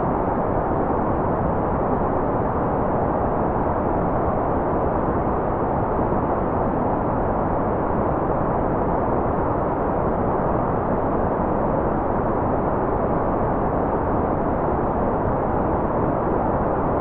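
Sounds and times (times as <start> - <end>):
white noise: 0.0 - 17.0.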